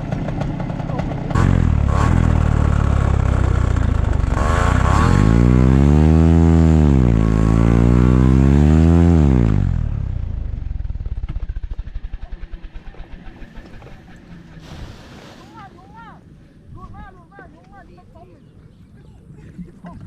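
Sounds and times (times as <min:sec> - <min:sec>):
paramotor engine running: 0:00.0 - 0:15.2.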